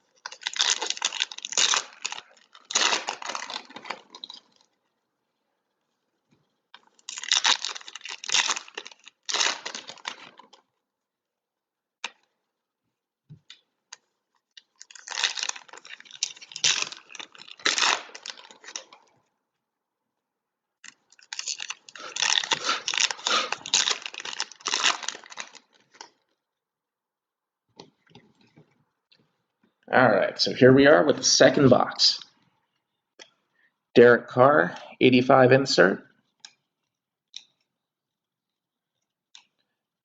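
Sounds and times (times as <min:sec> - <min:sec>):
card packaging tearing and crinkling: 0:00.2 - 0:04.4, 0:06.9 - 0:10.6, 0:14.7 - 0:19.0, 0:21.1 - 0:26.1.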